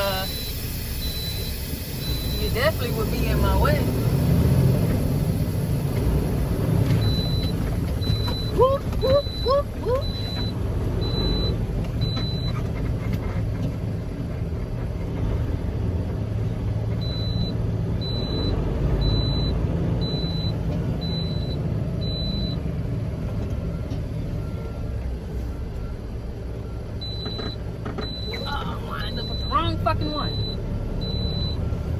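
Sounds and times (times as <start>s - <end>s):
high reversing beeper: 0.0s - 5.8s
diesel truck engine running: 0.0s - 31.9s.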